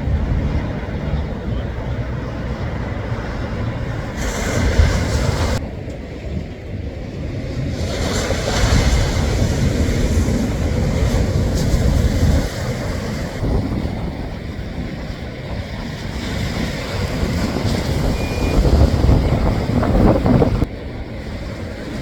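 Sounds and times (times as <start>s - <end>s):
wind buffeting microphone: 0.0s - 22.0s
breaking waves hissing: 2.4s - 5.6s, 7.6s - 14.3s.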